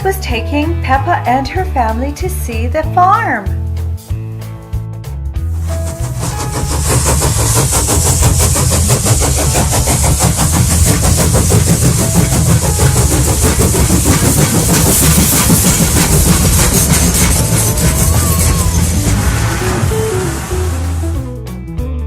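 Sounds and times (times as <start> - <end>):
train engine running: 5.4 - 21.4
hiss: 5.6 - 21.3.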